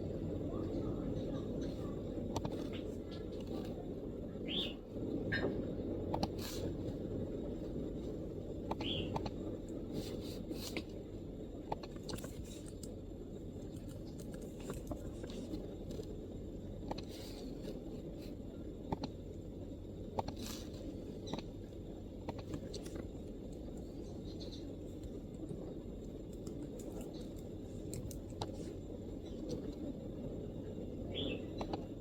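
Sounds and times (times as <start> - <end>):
low background rumble: 0.0 - 32.0.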